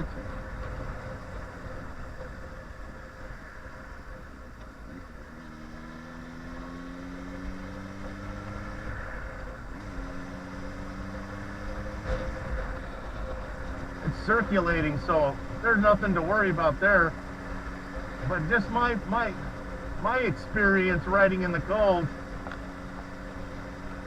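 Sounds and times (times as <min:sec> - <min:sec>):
low rush of wind: 0:00.0 - 0:24.0
motorcycle engine running: 0:00.0 - 0:24.0.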